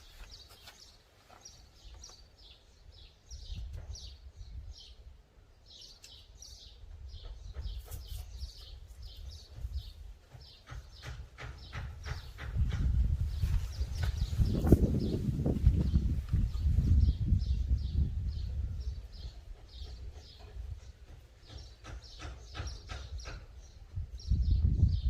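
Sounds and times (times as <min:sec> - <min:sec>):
songbird chirping: 0:00.0 - 0:25.0.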